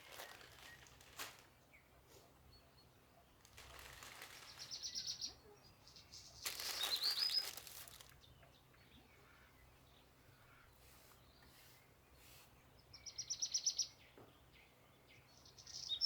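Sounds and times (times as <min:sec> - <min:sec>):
small bird chirping: 0:00.0 - 0:01.9, 0:02.5 - 0:09.5, 0:12.9 - 0:14.2, 0:15.3 - 0:16.0.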